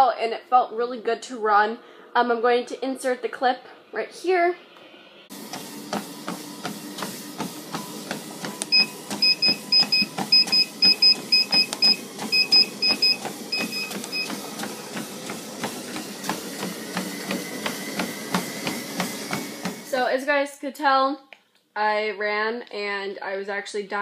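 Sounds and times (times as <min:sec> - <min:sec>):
running footsteps on treadmill: 0:05.3 - 0:20.0
treadmill console beeps: 0:05.4 - 0:19.9.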